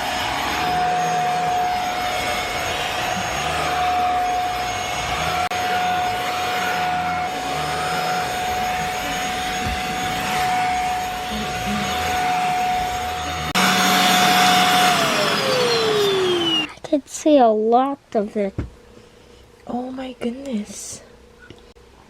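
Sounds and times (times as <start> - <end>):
motor spinning down: 0.0 - 16.7
vacuum cleaner whine: 0.0 - 16.7
vacuum suction noise: 0.0 - 16.7.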